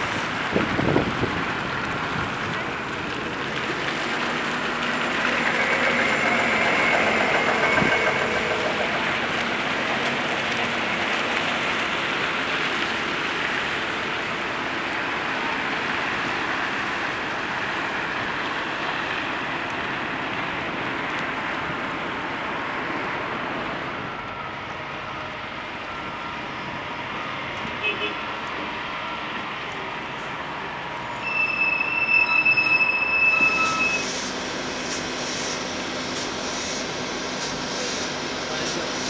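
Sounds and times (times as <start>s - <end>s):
vehicle noise: 0.0s - 17.5s.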